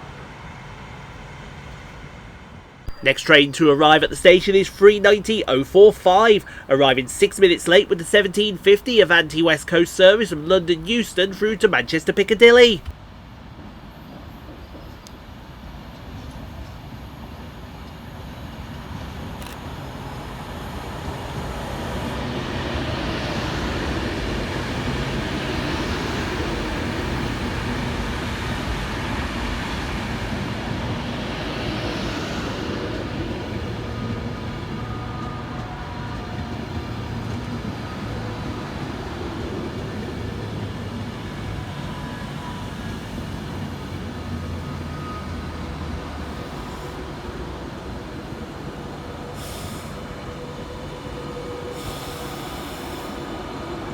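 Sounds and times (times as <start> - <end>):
hissy surges of passing coaches: 2.9 - 12.8.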